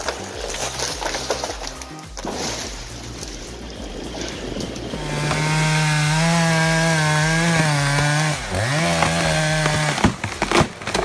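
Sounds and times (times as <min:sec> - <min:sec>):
chainsaw engine revving: 0:04.0 - 0:11.0.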